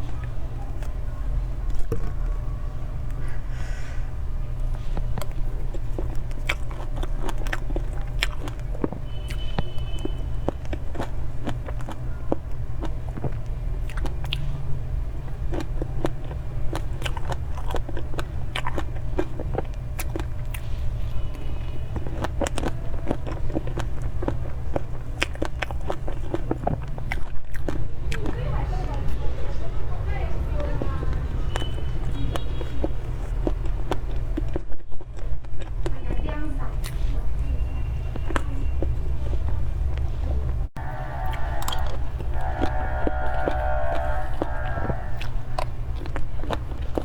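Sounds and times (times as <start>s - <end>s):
mouth clicks and chewing: 0.0s - 47.0s
steady low hum: 39.0s - 47.0s.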